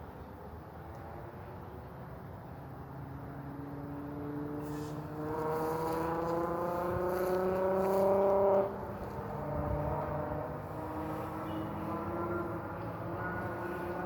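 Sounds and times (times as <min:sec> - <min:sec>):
vehicle engine accelerating: 0:03.2 - 0:14.0.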